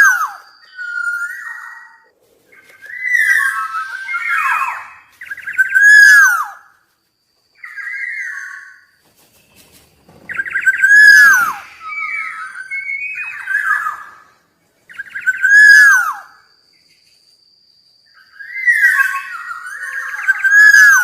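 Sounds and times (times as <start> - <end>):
oriole singing fluting phrases: 0.0 - 6.6, 10.3 - 16.3, 18.2 - 21.0
quiet whistled bird notes: 0.0 - 21.0.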